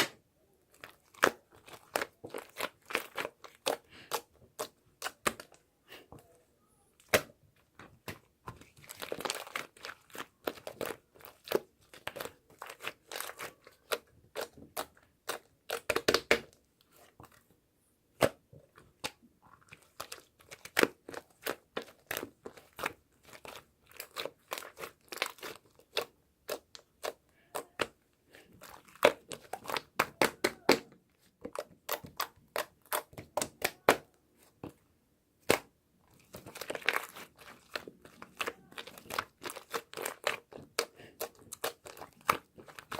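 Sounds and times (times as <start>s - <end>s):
crinkling handling noises: 36.0s - 42.9s.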